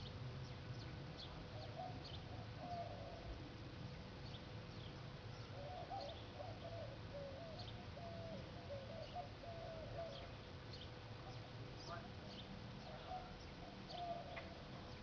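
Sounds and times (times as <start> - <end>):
faint birds chirping: 0.0 - 15.0
steady low hum: 0.0 - 15.0
warbling bird calls: 1.2 - 3.3, 5.4 - 15.0.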